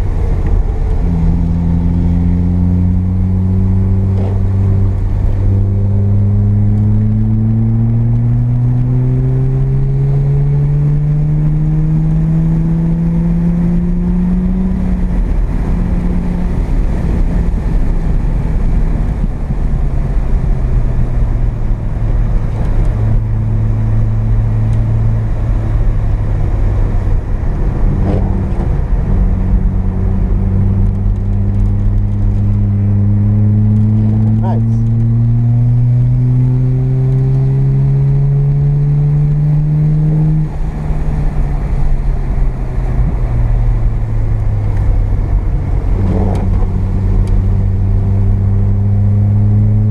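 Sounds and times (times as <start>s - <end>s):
road and tyre noise: 0.0s - 49.9s
rotary engine revving: 25.9s - 41.9s, 43.9s - 49.9s.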